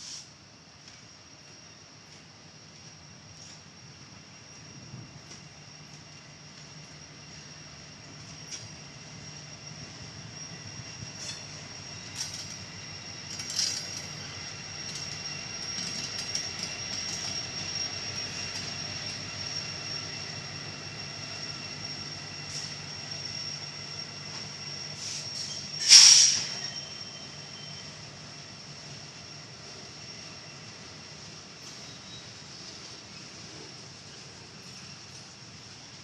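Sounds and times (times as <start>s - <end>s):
train rolling on rails: 0.0s - 36.0s
loud train screech: 7.3s - 35.9s
high-pitched wheel squeal: 10.4s - 28.0s.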